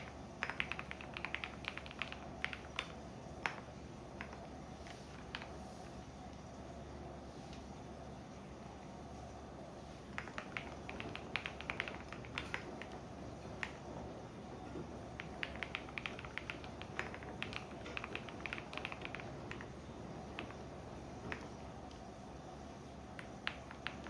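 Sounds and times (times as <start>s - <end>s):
keyboard typing: 0.0s - 4.5s, 10.1s - 14.0s, 14.7s - 21.7s, 23.1s - 24.0s
washing machine humming: 0.0s - 24.0s.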